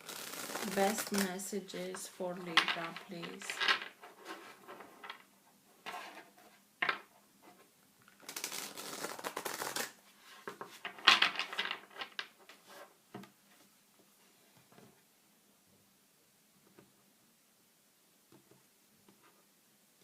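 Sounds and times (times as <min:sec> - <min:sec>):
cards being shuffled: 0:00.0 - 0:05.2, 0:08.1 - 0:12.4.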